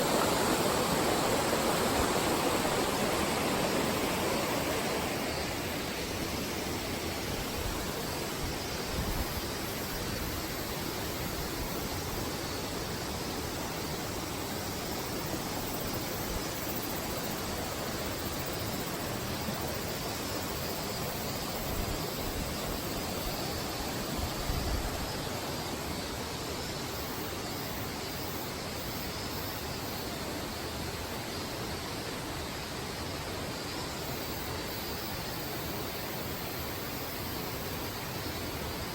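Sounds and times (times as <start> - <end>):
waterfall rushing: 0.0 - 11.1.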